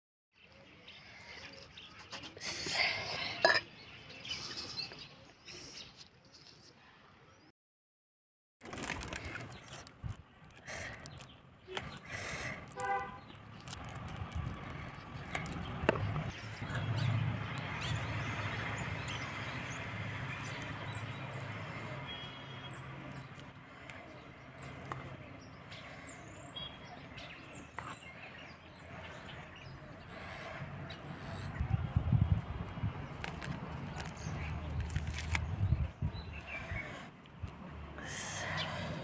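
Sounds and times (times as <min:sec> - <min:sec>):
low rumble of passing traffic: 0:08.7 - 0:39.0.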